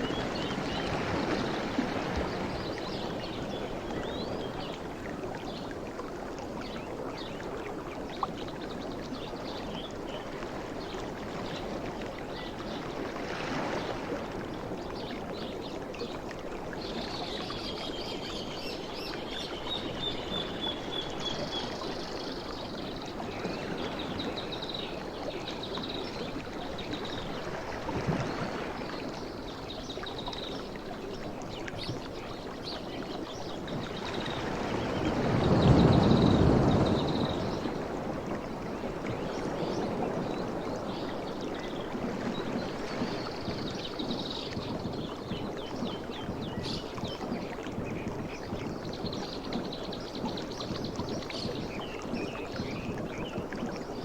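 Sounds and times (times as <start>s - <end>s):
sea waves washing: 33.2s - 46.8s.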